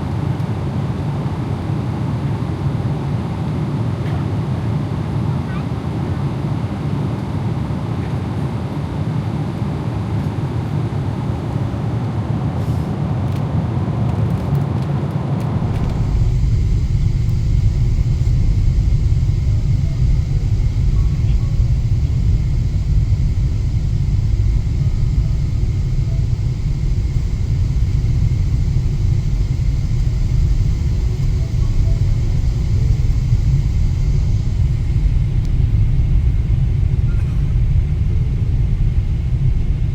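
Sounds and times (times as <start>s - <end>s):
deep low aircraft rumble: 11.3s - 39.9s
airliner cabin hiss: 12.6s - 13.0s, 15.5s - 39.9s.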